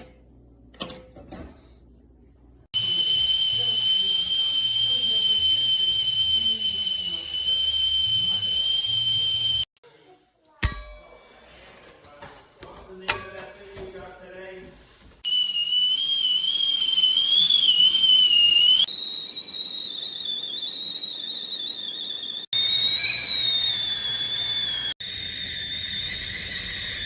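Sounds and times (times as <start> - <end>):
kettle whistling: 2.8 - 9.8, 15.2 - 27.0.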